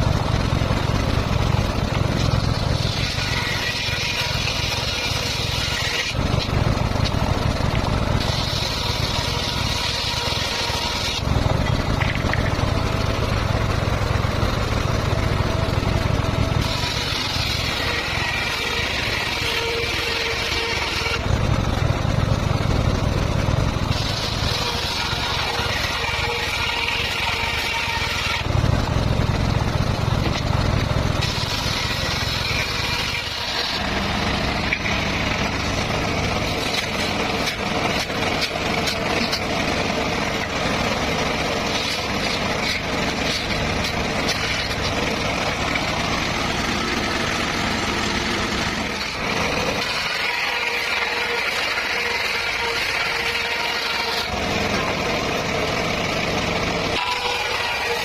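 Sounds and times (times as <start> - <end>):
circular saw cutting bamboo: 0.0 - 58.0.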